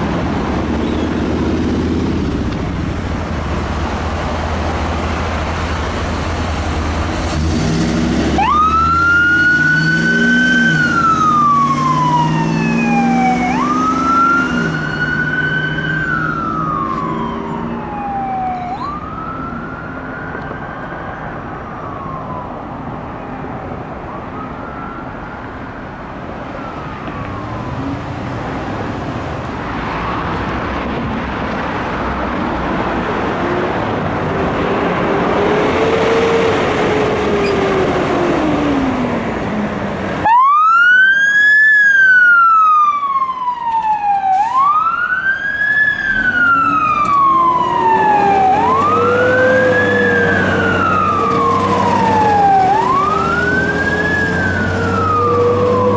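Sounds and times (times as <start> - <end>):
heavy engine rumble: 0.0 - 8.5, 45.8 - 55.9
road noise: 0.0 - 55.9
emergency siren wailing: 7.3 - 29.0, 34.5 - 55.9.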